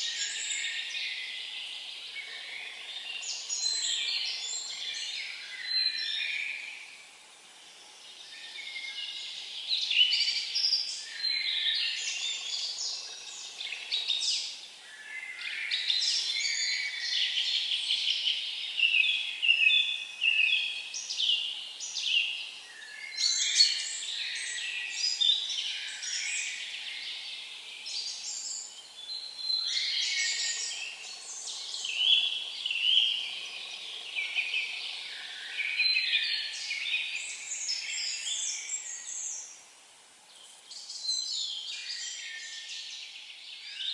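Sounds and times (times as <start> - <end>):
songbirds trilling: 8.1 - 39.6.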